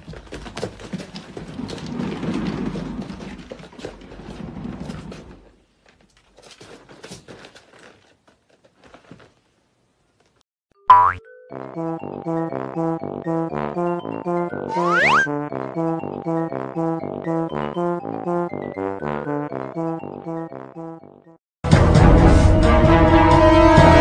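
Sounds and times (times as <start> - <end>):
cat scrabbling on hard floor: 0.0 - 5.1.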